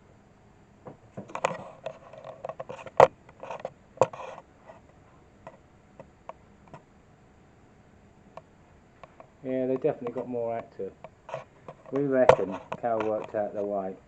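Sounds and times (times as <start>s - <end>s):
claws scratching on wood: 1.4s - 4.9s, 9.9s - 13.8s.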